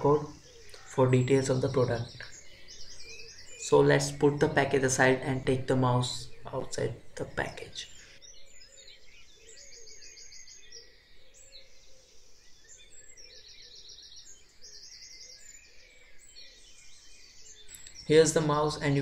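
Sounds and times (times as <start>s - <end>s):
bird trilling: 0.0s - 10.9s, 17.6s - 19.0s.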